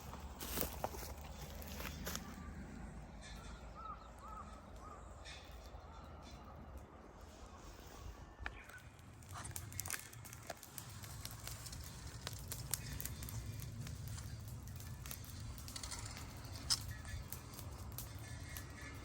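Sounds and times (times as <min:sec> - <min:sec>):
wood fire crackling and popping: 0:00.0 - 0:02.4, 0:08.4 - 0:19.0.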